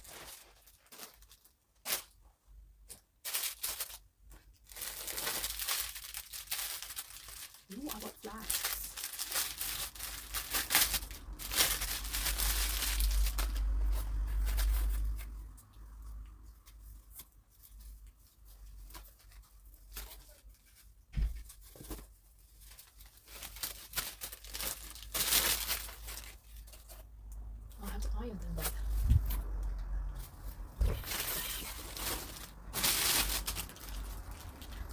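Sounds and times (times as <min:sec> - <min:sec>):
plastic packaging tearing and crinkling: 0:00.0 - 0:02.2, 0:02.9 - 0:15.4, 0:21.4 - 0:27.1, 0:30.8 - 0:34.9.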